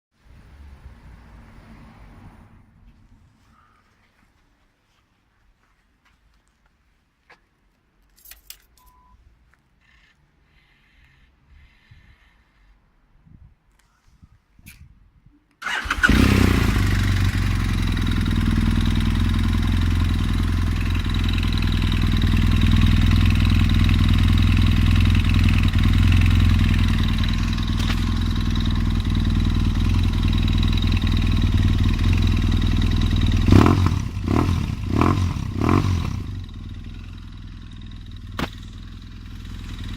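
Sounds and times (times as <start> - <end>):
motorcycle engine idling and revving: 15.6 - 39.9.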